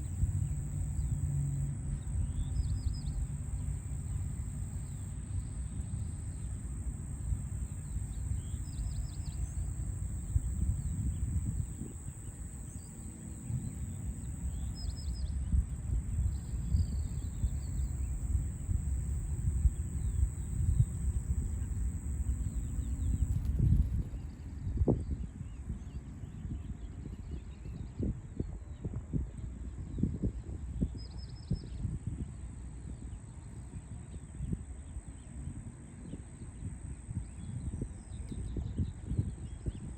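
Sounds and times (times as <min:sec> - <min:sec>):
low rumble of city traffic: 0:00.0 - 0:24.0.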